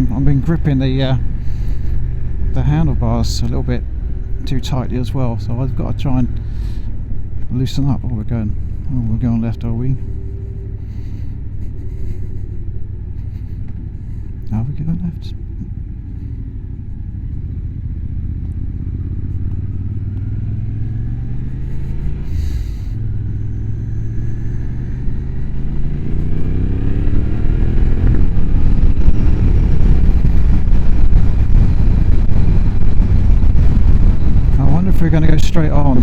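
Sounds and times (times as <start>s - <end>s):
motorcycle engine accelerating: 0.0s - 36.0s
rushing wind noise: 18.6s - 36.0s.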